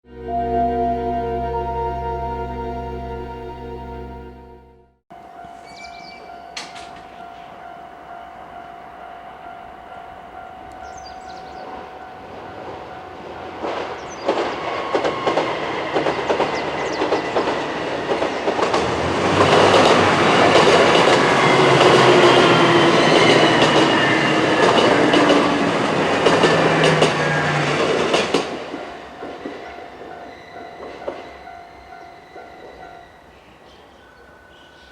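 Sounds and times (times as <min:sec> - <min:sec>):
diesel train passing: 0:00.0 - 0:33.4
crossing warning bell ringing: 0:00.1 - 0:33.3
wheels clicking over rail joints: 0:06.5 - 0:07.2, 0:13.6 - 0:22.4.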